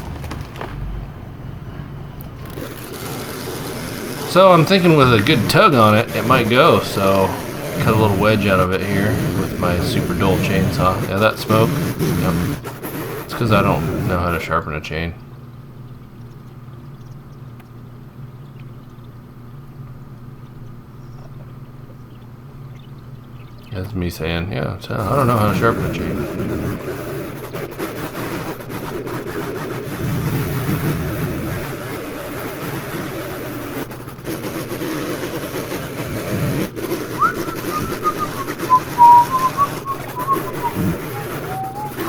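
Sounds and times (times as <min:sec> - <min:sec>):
high whistled tone: 0:37.2 - 0:42.0.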